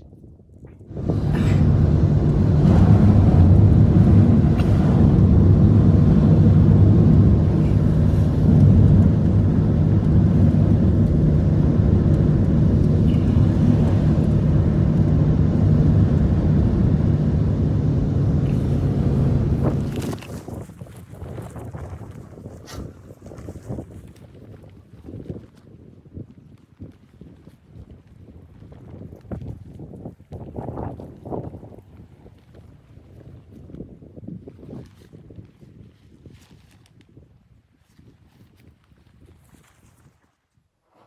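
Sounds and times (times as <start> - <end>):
engine running steadily: 0.9 - 20.4.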